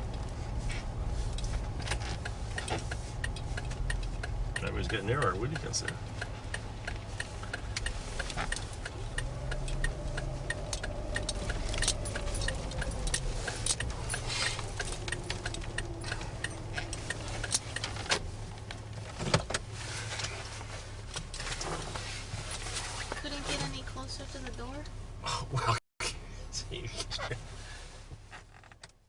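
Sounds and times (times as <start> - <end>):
car cabin low hum: 0.0 - 28.4
regular clicking: 1.3 - 19.6.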